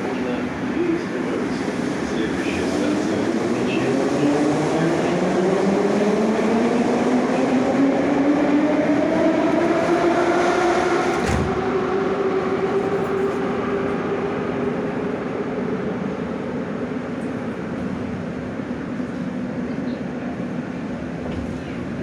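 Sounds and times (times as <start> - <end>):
train running noise: 0.0 - 22.0.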